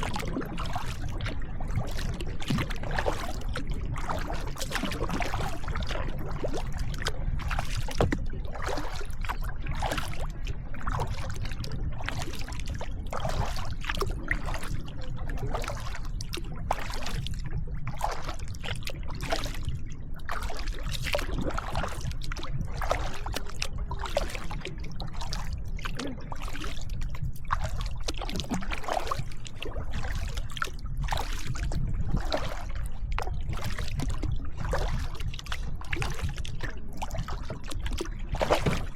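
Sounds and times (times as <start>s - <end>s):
paddle splashing in water: 0.0s - 38.9s
steady low rumble: 0.0s - 38.9s.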